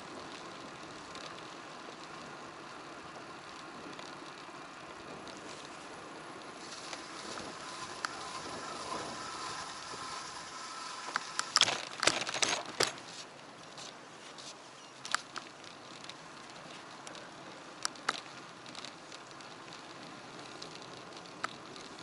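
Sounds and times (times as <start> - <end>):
bicycle rattles and knocks: 0.0 - 22.0
road and wind noise: 0.0 - 22.0.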